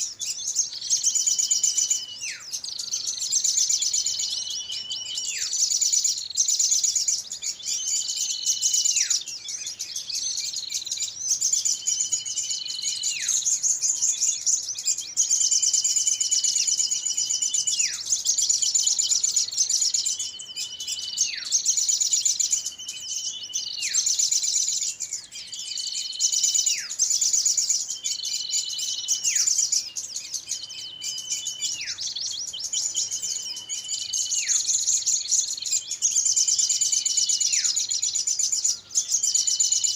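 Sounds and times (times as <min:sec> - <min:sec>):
small birds chirping: 0:00.0 - 0:39.9
whistled falling call: 0:00.0 - 0:39.9.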